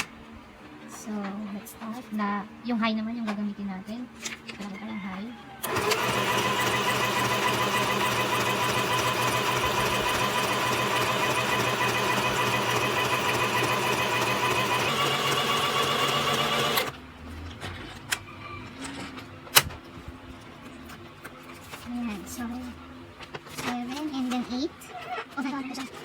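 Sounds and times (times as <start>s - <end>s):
sewing machine whirring: 5.6s - 17.0s.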